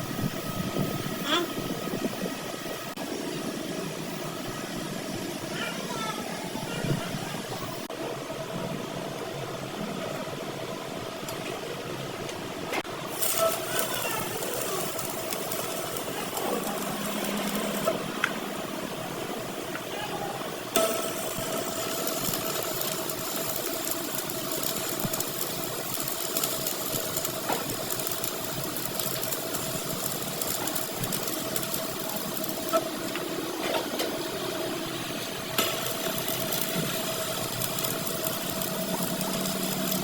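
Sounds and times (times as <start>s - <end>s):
workshop machine humming: 0.0s - 40.0s.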